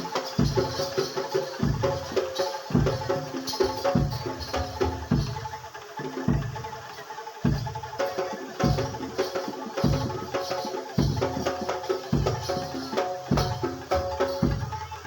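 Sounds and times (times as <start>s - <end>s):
gamelan music: 0.0s - 15.0s
quick light drum strokes: 0.0s - 15.0s
ringing metal percussion: 0.0s - 15.0s.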